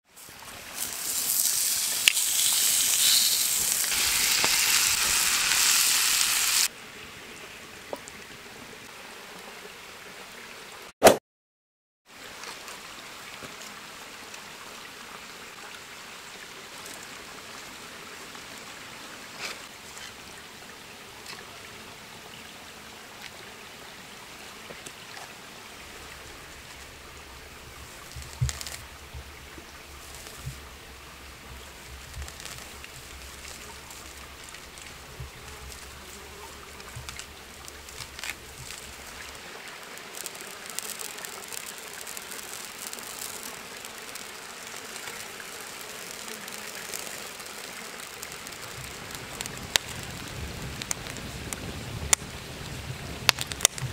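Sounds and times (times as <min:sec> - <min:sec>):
running water: 0:00.1 - 0:06.8, 0:12.1 - 0:53.9
small clicks: 0:40.0 - 0:44.3.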